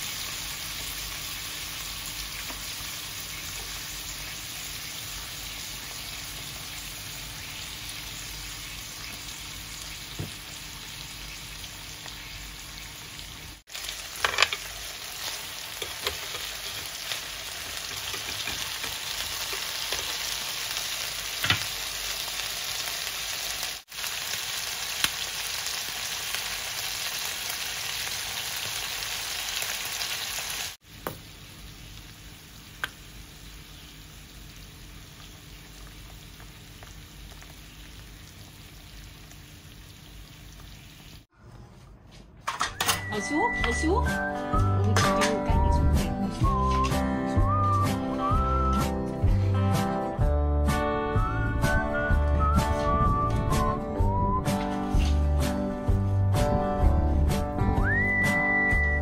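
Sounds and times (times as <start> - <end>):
meat sizzling in a grill pan: 0.0 - 41.3.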